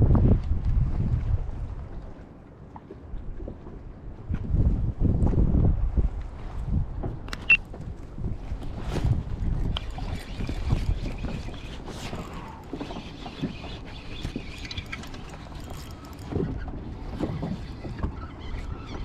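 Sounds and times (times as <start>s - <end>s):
wind buffeting microphone: 0.0s - 2.3s, 2.9s - 19.0s.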